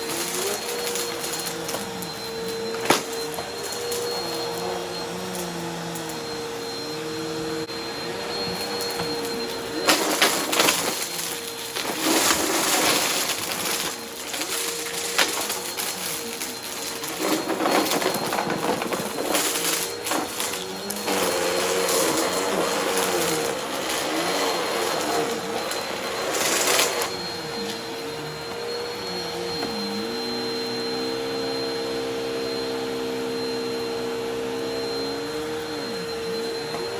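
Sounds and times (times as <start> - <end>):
vacuum cleaner running: 0.0 - 36.9
debris crackling and rattling: 9.3 - 27.2.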